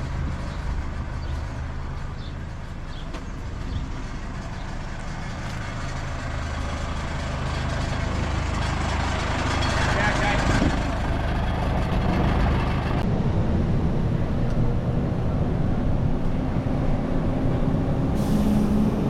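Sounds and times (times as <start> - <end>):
diesel engine droning: 0.0 - 19.0.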